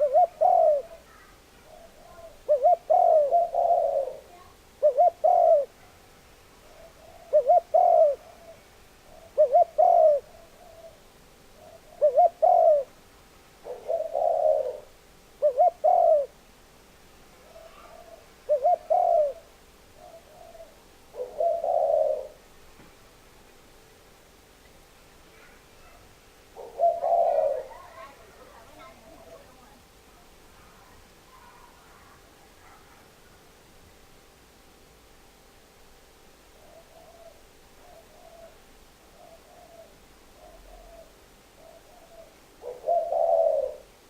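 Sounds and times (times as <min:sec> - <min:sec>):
dove cooing: 0:00.0 - 0:06.0, 0:06.6 - 0:13.0, 0:13.6 - 0:16.4, 0:17.4 - 0:22.5, 0:25.3 - 0:29.8, 0:30.6 - 0:33.2, 0:36.5 - 0:44.0.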